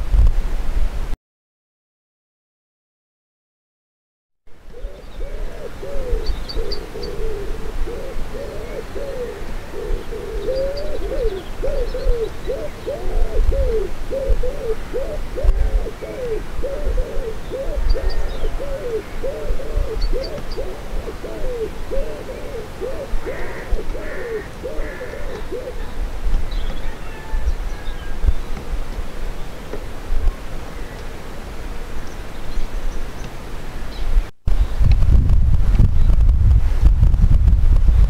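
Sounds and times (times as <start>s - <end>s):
wind rumbling on microphone: 0.0s - 1.2s, 4.5s - 38.0s
bird's low calls: 4.6s - 28.6s
small birds chirping: 4.7s - 27.0s.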